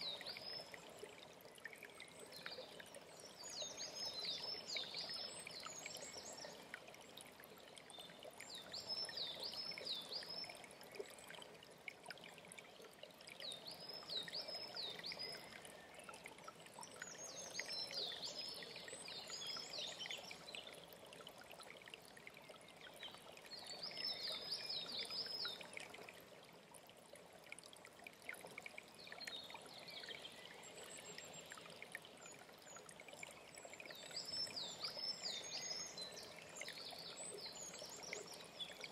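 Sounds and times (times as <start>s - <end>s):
running water: 0.0s - 38.9s
songbird singing: 33.8s - 38.9s.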